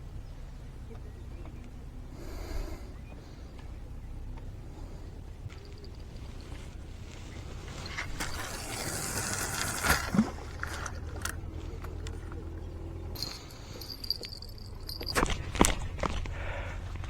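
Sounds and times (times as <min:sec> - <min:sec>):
scraping and rustling: 0:06.5 - 0:12.4.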